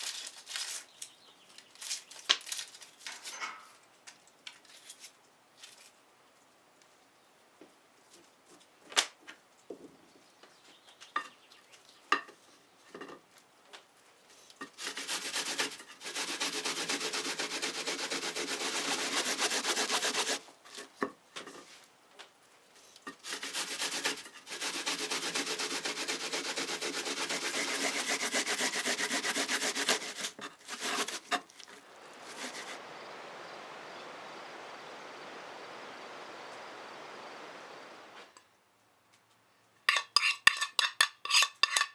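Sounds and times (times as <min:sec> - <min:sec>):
potatoes grated on a grater: 0:14.6 - 0:20.9, 0:23.1 - 0:32.8, 0:39.9 - 0:41.9
steady even hiss: 0:29.4 - 0:38.4.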